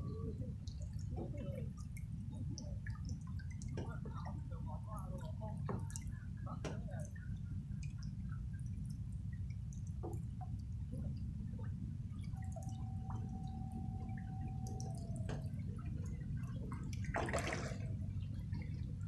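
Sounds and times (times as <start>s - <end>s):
low steady rumble: 0.0s - 19.0s
thin steady tone: 0.0s - 19.0s
rain dripping: 5.1s - 19.0s.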